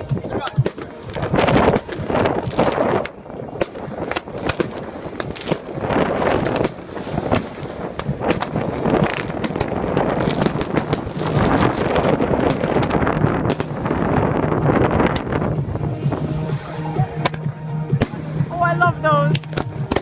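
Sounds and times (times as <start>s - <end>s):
fireworks cracking and popping: 0.0s - 20.0s.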